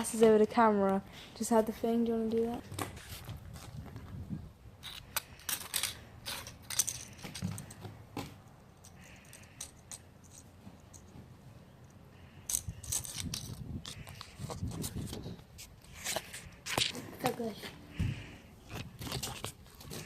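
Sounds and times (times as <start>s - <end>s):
small hard objects clinking: 4.8s - 7.8s, 12.3s - 14.5s.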